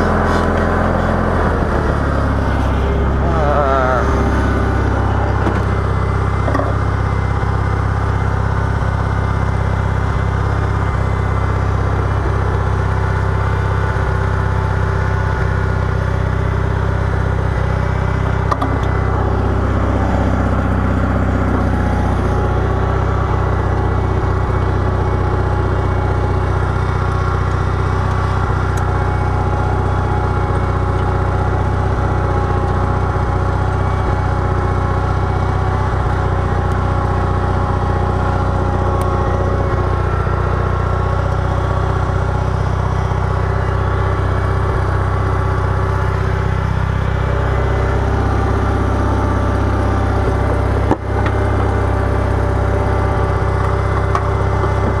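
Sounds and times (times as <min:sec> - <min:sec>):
garden tractor engine running: 0:00.0 - 0:55.0.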